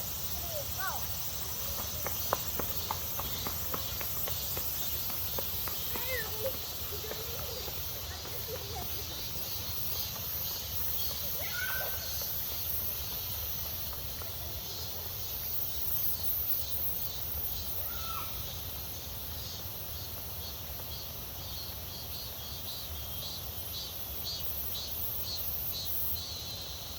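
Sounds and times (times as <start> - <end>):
cicadas hissing: 0.0 - 26.9
pulsing insect call: 0.0 - 26.9.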